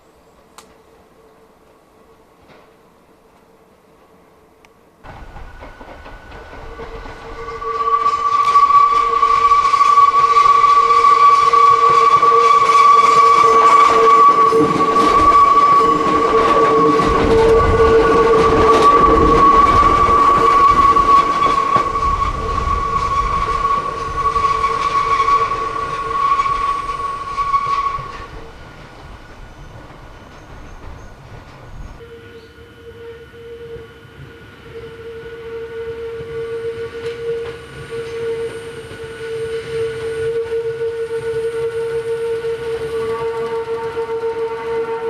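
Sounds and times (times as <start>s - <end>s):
train rumbling past: 0.0s - 45.0s
steady high ringing tones: 32.0s - 35.3s.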